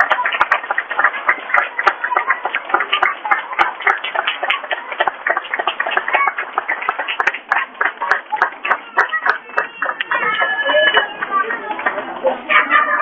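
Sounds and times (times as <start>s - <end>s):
audience applauding: 0.0s - 13.0s
voices: 0.0s - 13.0s.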